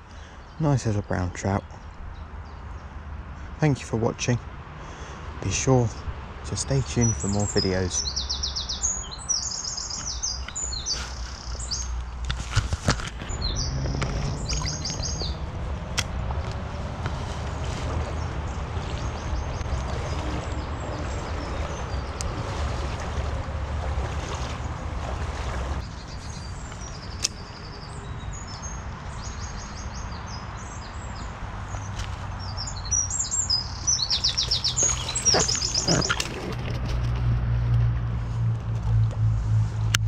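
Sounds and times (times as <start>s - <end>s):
songbird chirping and trilling: 6.5s - 12.2s, 13.2s - 15.6s, 18.1s - 23.4s, 25.8s - 36.3s
rushing background noise: 9.6s - 28.0s
low rumble: 13.1s - 25.8s, 36.5s - 40.0s.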